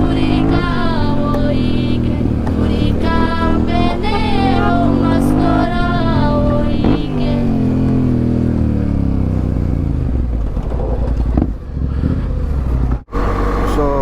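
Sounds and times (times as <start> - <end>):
motorcycle engine: 0.0 - 14.0.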